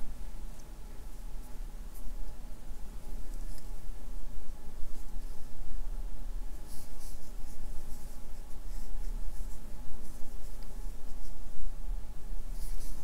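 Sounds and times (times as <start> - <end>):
steady low hum: 0.0 - 13.0
crochet hook rustling yarn: 3.1 - 3.9, 6.5 - 11.6, 12.4 - 13.0.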